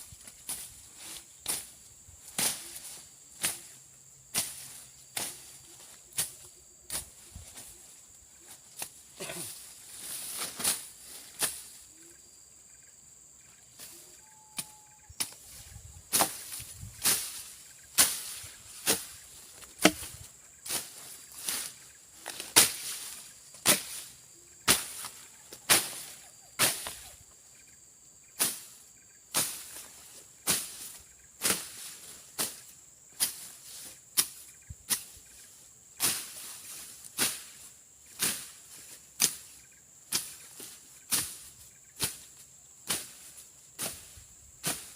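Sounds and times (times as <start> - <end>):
high insect drone: 0.0 - 44.9
machete slashing through brush: 16.1 - 24.1, 24.7 - 27.1.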